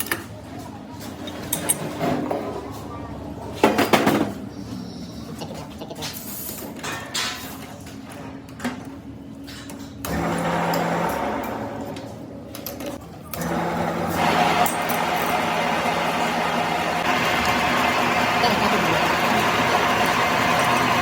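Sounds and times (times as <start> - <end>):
small machine motor humming: 13.4 - 21.0.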